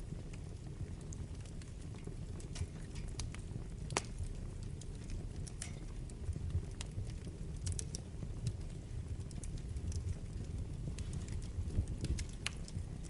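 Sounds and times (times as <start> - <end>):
fire crackles and pops: 0.0 - 13.0
wood fire flames rumbling: 0.0 - 13.0.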